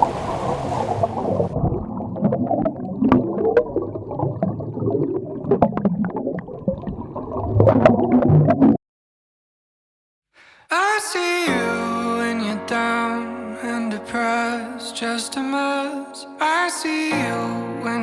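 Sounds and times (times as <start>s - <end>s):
muffled underwater water gurgling: 0.0s - 8.8s.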